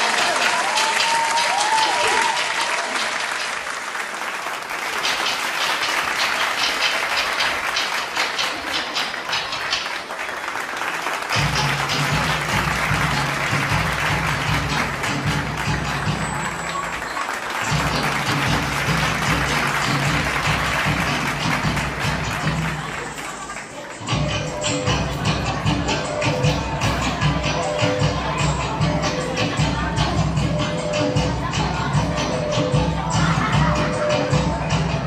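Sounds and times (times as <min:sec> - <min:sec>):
audience applauding: 0:00.0 - 0:24.1.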